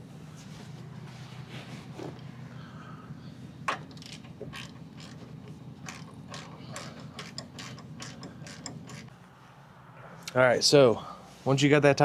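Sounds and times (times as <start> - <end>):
steady low hum: 0.0 - 11.5
ratchet wrench clicking: 3.7 - 9.2.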